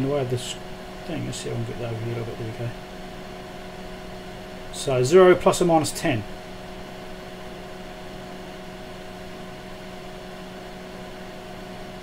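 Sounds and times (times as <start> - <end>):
test equipment humming: 0.0 - 12.0.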